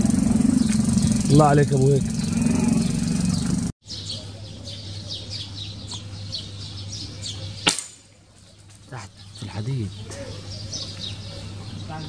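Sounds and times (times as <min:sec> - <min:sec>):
steady low hum: 0:00.0 - 0:03.7
small birds chirping: 0:00.0 - 0:12.0.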